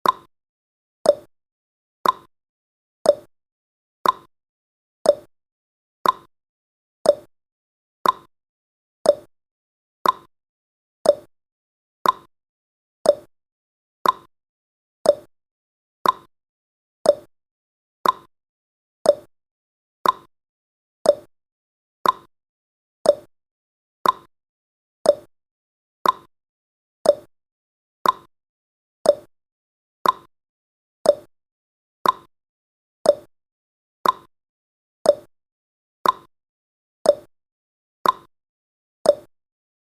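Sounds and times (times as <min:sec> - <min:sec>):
clock ticking: 0:02.0 - 0:02.3, 0:04.0 - 0:04.3, 0:06.0 - 0:06.3, 0:08.0 - 0:08.3, 0:10.0 - 0:10.3, 0:12.0 - 0:12.3, 0:14.0 - 0:14.3, 0:15.1 - 0:15.3, 0:16.0 - 0:16.3, 0:18.0 - 0:18.3, 0:20.0 - 0:20.3, 0:22.0 - 0:22.3, 0:24.0 - 0:24.3, 0:25.1 - 0:25.3, 0:26.0 - 0:26.3, 0:27.1 - 0:27.3, 0:28.0 - 0:28.3, 0:29.1 - 0:29.3, 0:30.0 - 0:30.3, 0:32.0 - 0:32.3, 0:33.1 - 0:33.3, 0:34.0 - 0:34.3, 0:36.0 - 0:36.3, 0:38.0 - 0:38.3, 0:39.1 - 0:39.3.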